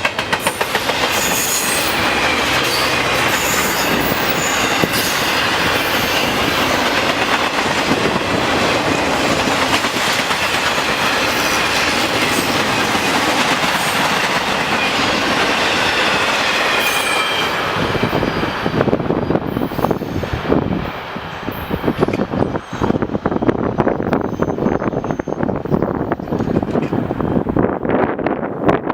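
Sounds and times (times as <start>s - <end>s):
freight train cars clicking over joints: 0.0s - 17.0s, 21.9s - 27.2s
high wheel squeal: 0.4s - 7.0s, 13.7s - 18.6s, 23.8s - 26.6s.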